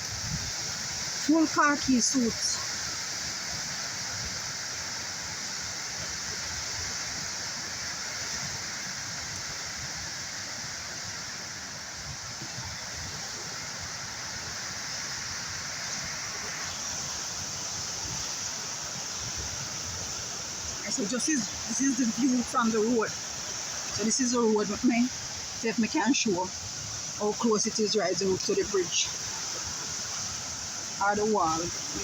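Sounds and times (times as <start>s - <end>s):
flooded river rushing: 0.0s - 32.0s.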